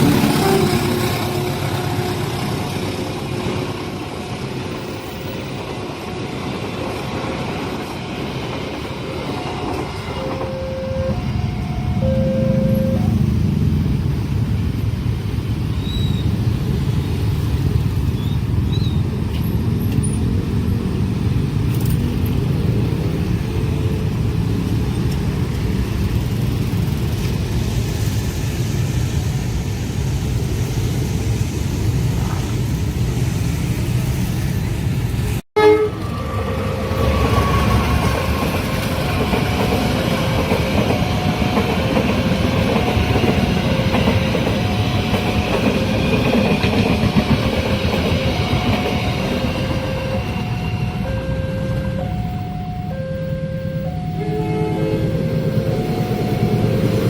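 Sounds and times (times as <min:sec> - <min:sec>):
train horn: 0:00.0 - 0:02.7, 0:10.1 - 0:13.3, 0:35.6 - 0:38.2, 0:53.0 - 0:56.8
train rumbling past: 0:00.0 - 0:57.0
level crossing alarm tones: 0:10.1 - 0:13.2, 0:48.3 - 0:57.0.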